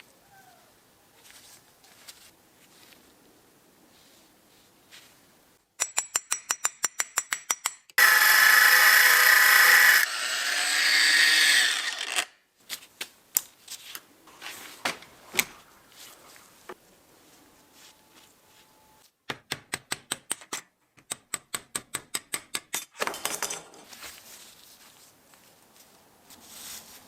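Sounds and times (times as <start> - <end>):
power tool motor running: 8.0 - 12.3
metal parts knocking and clinking: 22.7 - 23.9.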